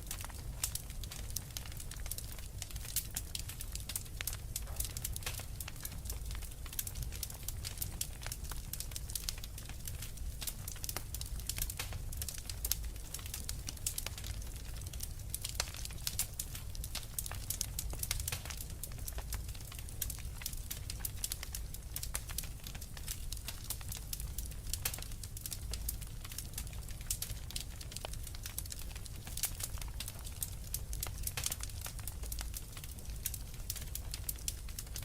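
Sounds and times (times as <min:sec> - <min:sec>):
wood fire crackling and popping: 0:00.0 - 0:35.0.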